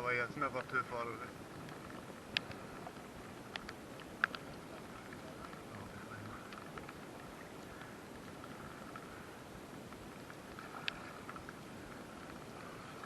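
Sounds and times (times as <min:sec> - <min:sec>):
river water flowing: 0:00.0 - 0:13.0
light clicks: 0:01.6 - 0:07.0, 0:10.5 - 0:11.6.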